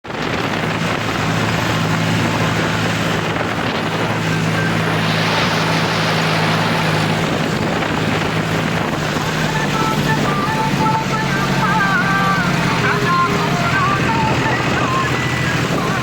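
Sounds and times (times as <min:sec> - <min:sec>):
harvester engine running: 0:00.0 - 0:16.0
rush of machinery noise: 0:00.0 - 0:16.0.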